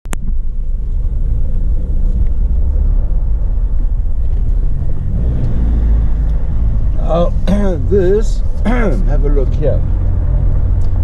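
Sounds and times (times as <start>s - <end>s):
car driving rumble: 0.1s - 11.0s.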